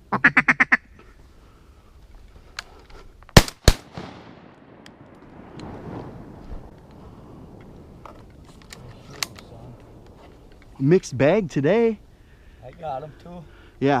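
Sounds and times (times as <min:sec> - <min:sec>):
shotgun shots: 0:03.4 - 0:05.8
rolling echo: 0:03.4 - 0:08.6.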